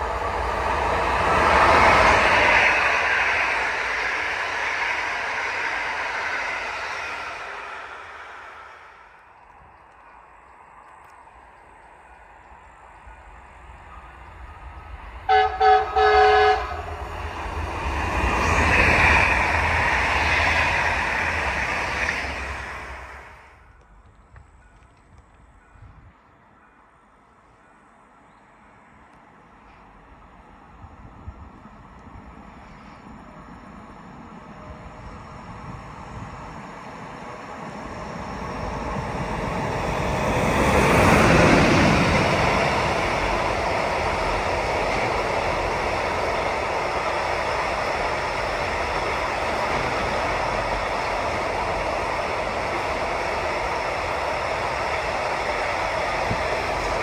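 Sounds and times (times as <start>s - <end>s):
train rumbling past: 0.0s - 57.0s
train horn blasts: 15.3s - 17.0s.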